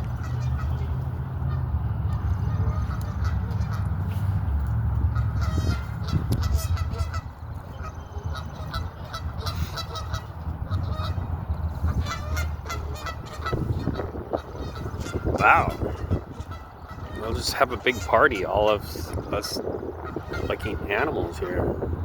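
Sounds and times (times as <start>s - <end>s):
steady low rumble: 0.0s - 22.0s
flock of birds calling: 5.1s - 21.7s.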